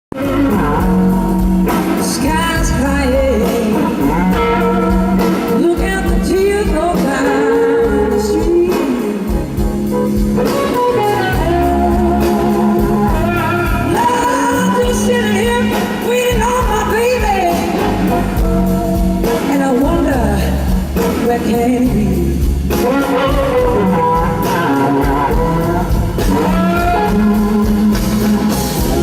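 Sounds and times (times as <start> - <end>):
blues band playing: 0.1 - 29.0
electric guitar bending notes: 0.1 - 29.0.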